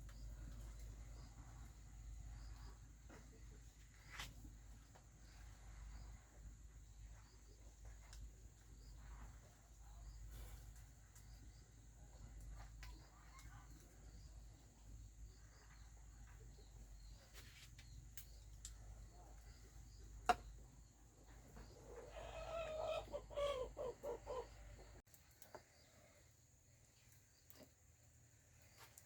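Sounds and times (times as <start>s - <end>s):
chicken clucking: 21.5s - 25.0s.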